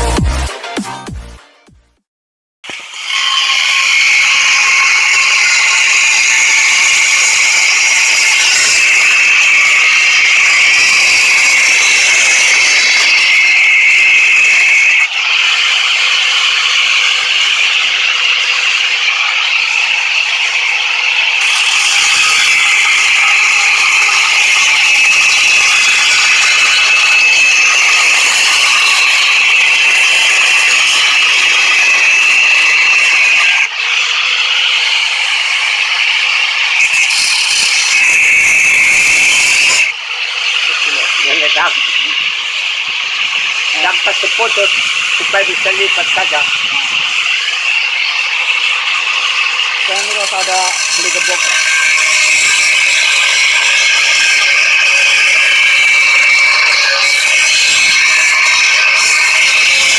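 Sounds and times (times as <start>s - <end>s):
rasping metal ratcheting: 46.9s - 59.9s.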